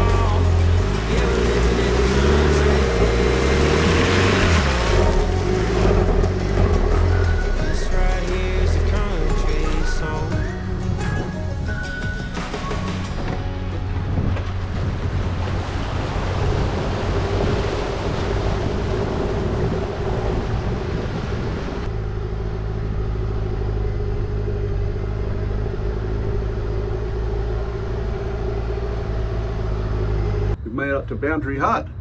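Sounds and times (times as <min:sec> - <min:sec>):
vehicle engine running: 0:00.0 - 0:30.6.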